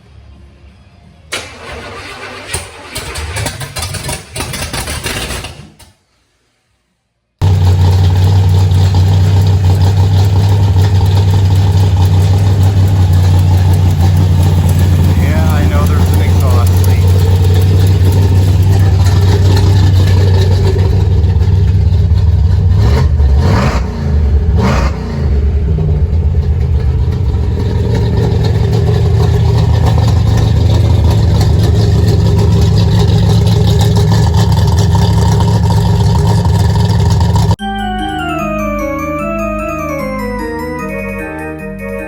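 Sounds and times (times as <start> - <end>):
car engine idling high: 7.4 - 37.6.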